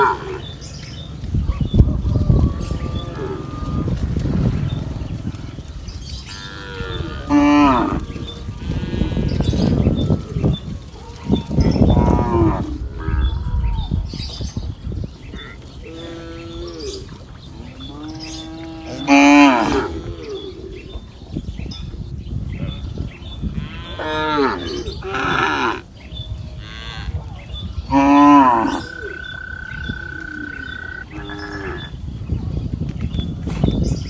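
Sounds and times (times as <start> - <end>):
cattle mooing: 0.0 - 0.6, 1.9 - 10.6, 17.7 - 20.5, 23.6 - 25.8, 27.9 - 32.0.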